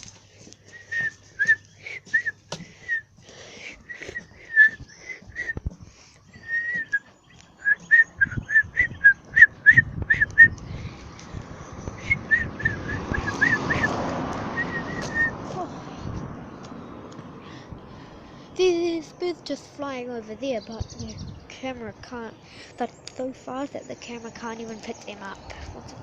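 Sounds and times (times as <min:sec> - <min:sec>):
small birds chirping: 0:00.0 - 0:26.0
rushing noise: 0:08.2 - 0:16.5.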